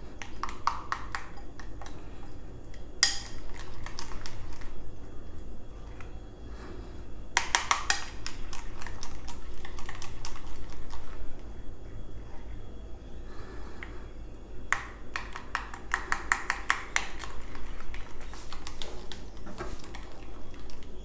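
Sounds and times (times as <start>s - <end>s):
utensil clicking against a bowl: 0.2s - 2.0s, 2.7s - 4.8s, 7.4s - 11.2s, 14.7s - 21.0s.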